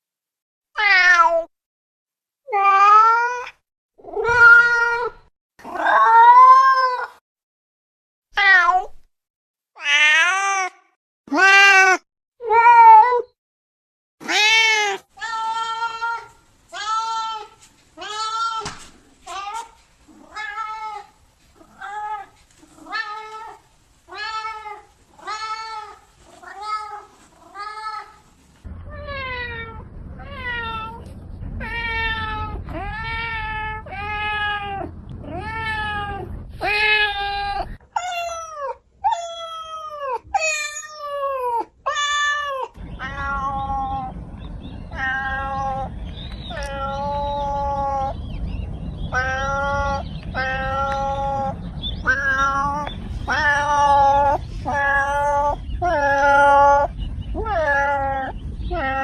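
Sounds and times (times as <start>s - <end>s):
cats meowing: 2.5s - 7.1s, 14.2s - 28.2s, 31.6s - 44.2s, 44.9s - 48.2s, 49.1s - 59.0s
low rumble: 15.1s - 37.9s, 42.7s - 59.0s.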